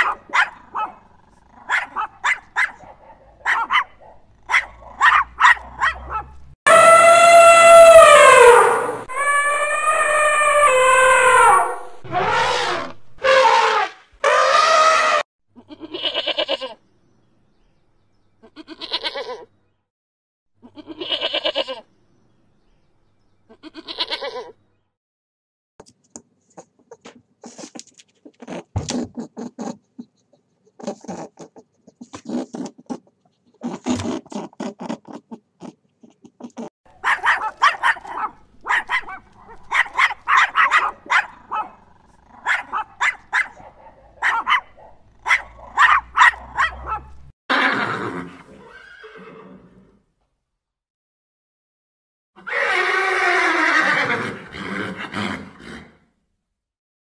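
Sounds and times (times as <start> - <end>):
puppy high calls: 0.0 - 1.0, 1.6 - 15.2, 36.0 - 47.8
animal calls: 0.0 - 15.2
goat kids bleating: 15.6 - 16.8, 18.4 - 19.5, 20.6 - 21.8, 23.5 - 24.5
horse neighing: 47.5 - 50.0, 52.4 - 56.0.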